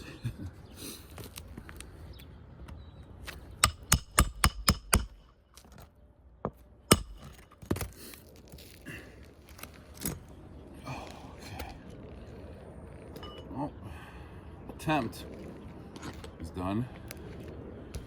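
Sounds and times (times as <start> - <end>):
hammer striking nails into shingle: 3.6 - 5.3, 6.9 - 7.9.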